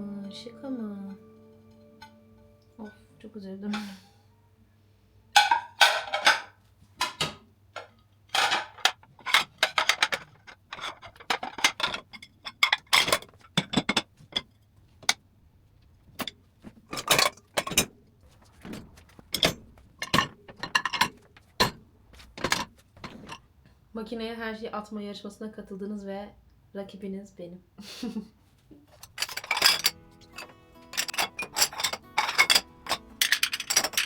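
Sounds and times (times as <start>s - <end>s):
dishes and cutlery clinking: 5.4s - 7.2s, 8.3s - 14.5s, 16.9s - 17.9s, 18.6s - 21.8s, 22.4s - 23.4s, 29.0s - 34.0s.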